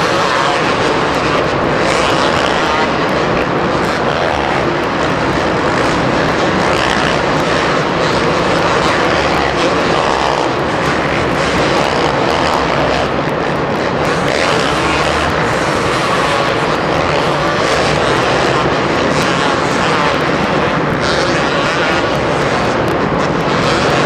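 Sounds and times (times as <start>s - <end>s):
motocross bikes revving: 0.0s - 24.0s.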